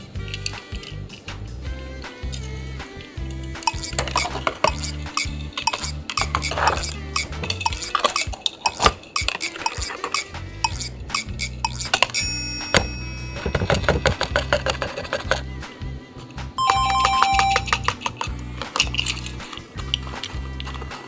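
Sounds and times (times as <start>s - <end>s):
background music with bass line: 0.0s - 7.7s
toy cars clinking: 0.0s - 21.0s.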